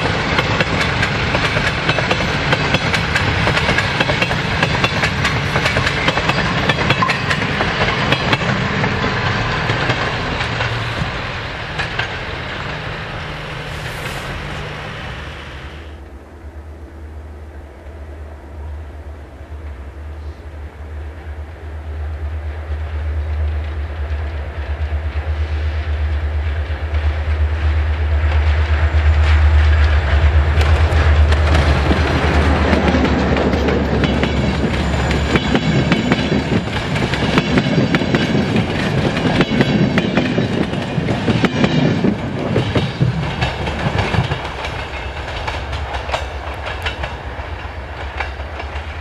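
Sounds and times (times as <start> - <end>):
wheels clacking over rail joints: 0.0 - 15.2, 26.0 - 49.0
deep train engine rumble: 0.0 - 49.0.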